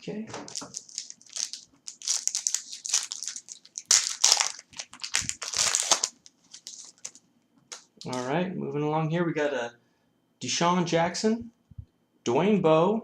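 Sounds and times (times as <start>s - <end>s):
wrapper tearing and crinkling: 0.5s - 8.2s.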